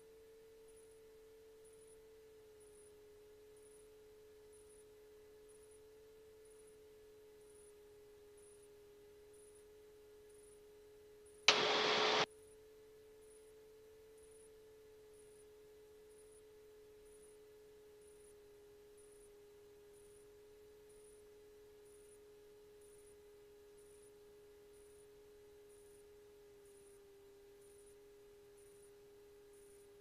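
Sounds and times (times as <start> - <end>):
faint whine tone: 0.0 - 30.0
radio static burst: 11.5 - 12.2.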